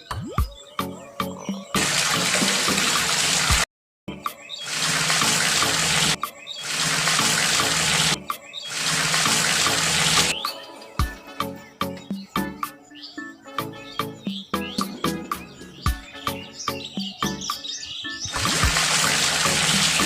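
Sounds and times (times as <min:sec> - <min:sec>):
water rushing: 0:01.8 - 0:03.7, 0:04.6 - 0:10.4, 0:18.3 - 0:20.0
faint background music: 0:04.1 - 0:20.0.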